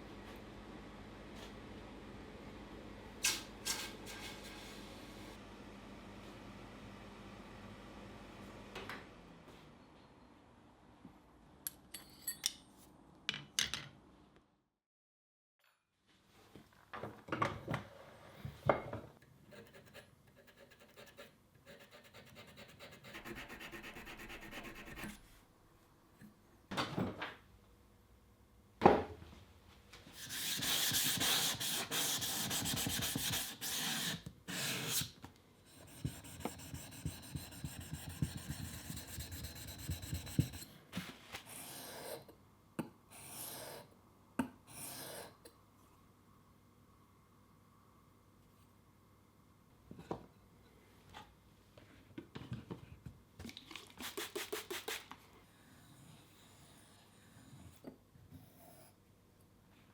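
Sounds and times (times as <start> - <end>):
filing steel tool: 19.5 - 25.2, 30.2 - 35.1, 35.7 - 40.7.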